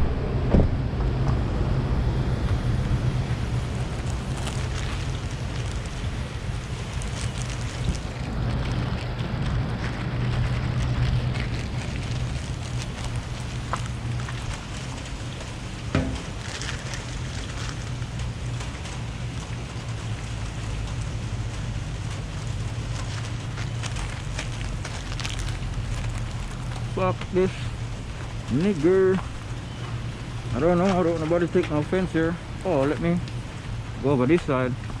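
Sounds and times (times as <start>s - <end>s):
vehicle engine idling: 0.0s - 35.0s
rain hissing: 2.1s - 35.0s
knock: 16.0s - 16.2s.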